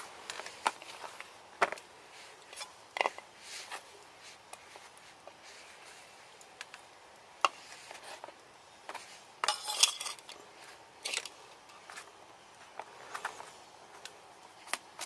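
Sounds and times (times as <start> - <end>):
cookware and utensils clinking: 9.4 - 10.3.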